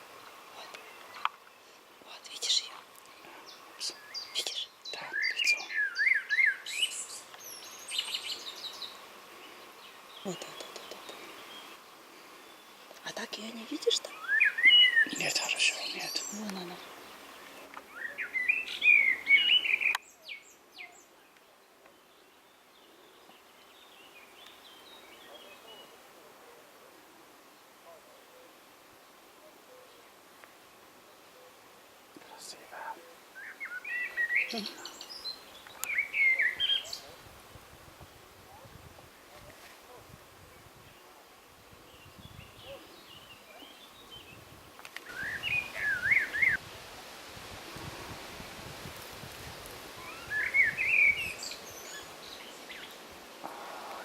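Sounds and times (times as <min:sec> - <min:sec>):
faint bird chirps: 0:00.2 - 0:26.6, 0:32.2 - 0:37.2, 0:41.8 - 0:44.4, 0:45.0 - 0:46.7, 0:49.9 - 0:54.0
faint clicks: 0:02.7 - 0:03.3, 0:35.6 - 0:36.0, 0:44.8 - 0:45.1
songbird warbling: 0:13.4 - 0:21.0, 0:32.4 - 0:37.2, 0:45.0 - 0:46.6, 0:50.0 - 0:53.0
distant bird twittering: 0:14.1 - 0:21.0, 0:32.3 - 0:37.2, 0:45.0 - 0:46.6, 0:49.9 - 0:54.0
bird whistling song phrase: 0:14.2 - 0:15.4, 0:35.8 - 0:37.1, 0:45.1 - 0:46.6, 0:50.0 - 0:52.0.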